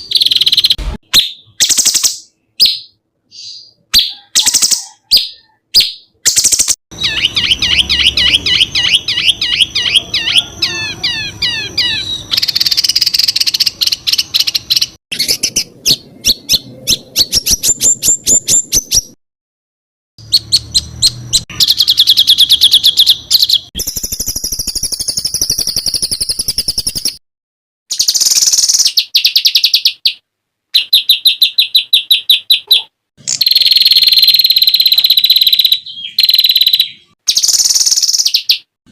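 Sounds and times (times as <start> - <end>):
bird chirps sweeping: 0.0 - 19.2, 20.2 - 27.2, 27.9 - 30.2, 30.8 - 38.7
songbirds trilling: 0.0 - 19.2.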